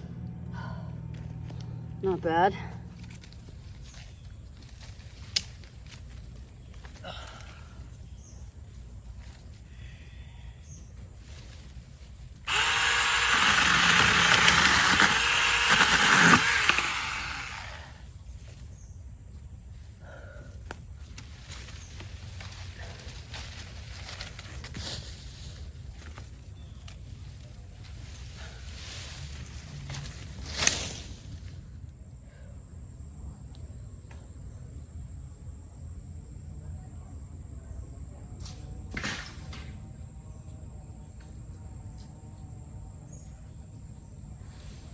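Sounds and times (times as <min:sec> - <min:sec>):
insects trilling: 0:00.9 - 0:24.8
mini chainsaw cutting: 0:12.5 - 0:18.0
short noisy burst: 0:12.5 - 0:18.0.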